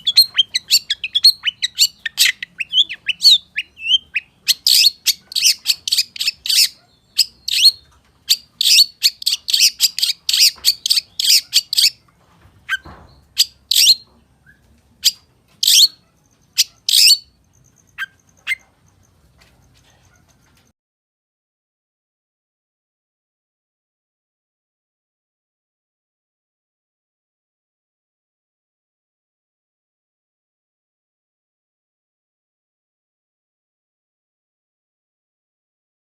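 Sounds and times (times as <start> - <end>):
bird singing sharp high chirps: 0.0 - 12.0, 12.7 - 18.7.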